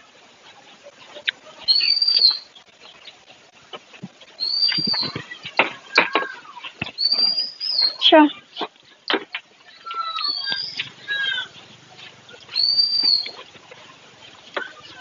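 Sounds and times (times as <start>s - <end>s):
bird whistled call: 1.7s - 2.5s, 4.4s - 5.2s, 7.0s - 8.1s, 9.7s - 11.6s, 12.5s - 13.4s.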